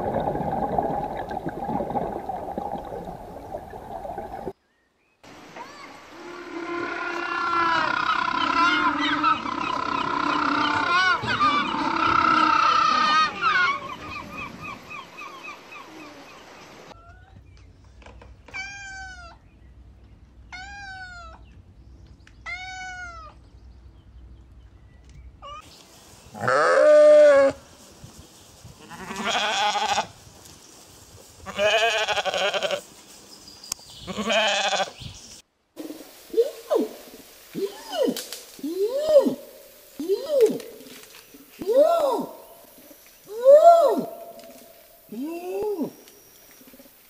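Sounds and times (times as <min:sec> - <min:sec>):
animal calls: 0:06.2 - 0:16.3
loud wavering animal cries: 0:06.5 - 0:13.9.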